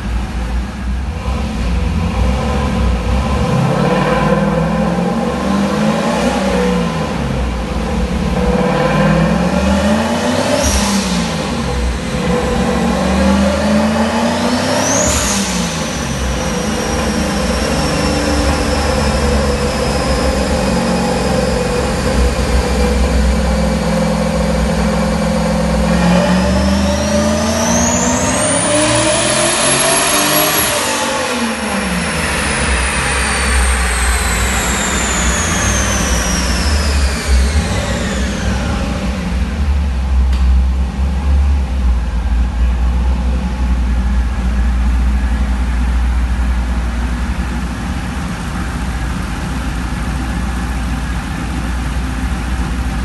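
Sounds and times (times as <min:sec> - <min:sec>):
car engine revving: 0:00.0 - 0:53.0
high turbo whistle: 0:08.4 - 0:39.4.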